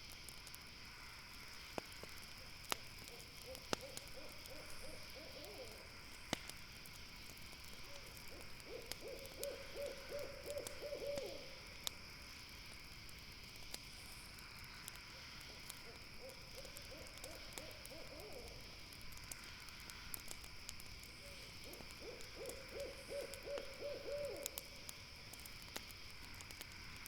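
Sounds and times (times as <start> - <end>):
campfire crackling: 0.0 - 27.0
owl hooting: 3.4 - 5.8, 8.3 - 11.6, 16.2 - 18.6, 21.6 - 24.6.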